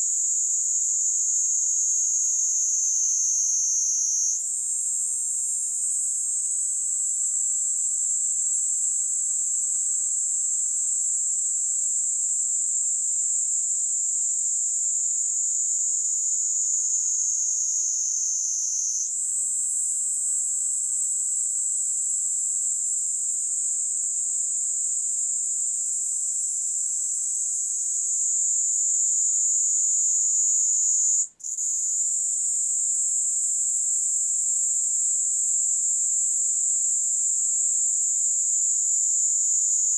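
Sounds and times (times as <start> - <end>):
cicada buzzing: 2.1 - 4.4, 16.8 - 19.1.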